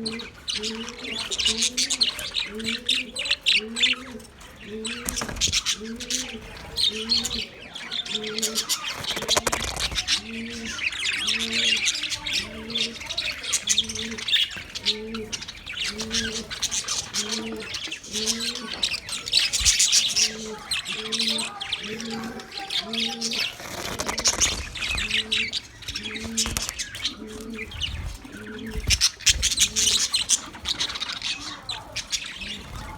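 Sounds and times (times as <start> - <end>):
budgerigars chirping: 0.0 - 32.9
short run of clicks: 8.9 - 10.2, 23.5 - 24.9
low coo: 20.1 - 30.1.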